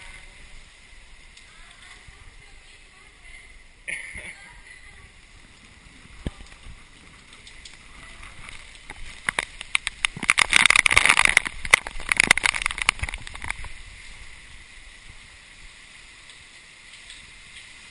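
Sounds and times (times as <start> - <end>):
wind buffeting the camera: 4.8 - 17.9.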